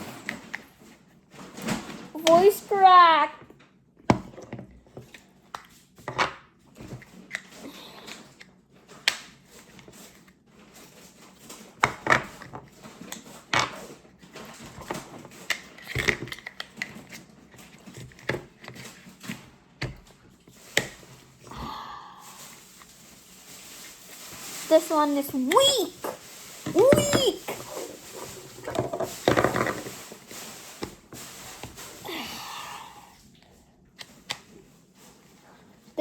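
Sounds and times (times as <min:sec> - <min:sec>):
plastic toys clicking and tapping: 0:11.1 - 0:21.1
packaging being handled: 0:22.2 - 0:32.2.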